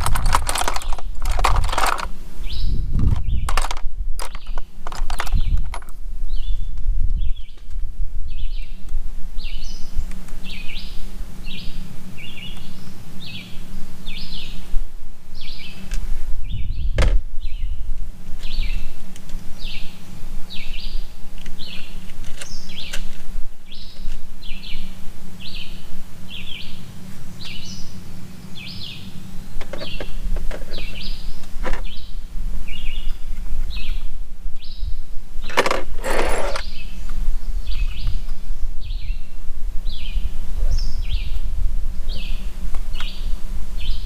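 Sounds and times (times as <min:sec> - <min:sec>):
songbird chirping: 0:00.0 - 0:44.0
steady low rumble: 0:00.0 - 0:44.0.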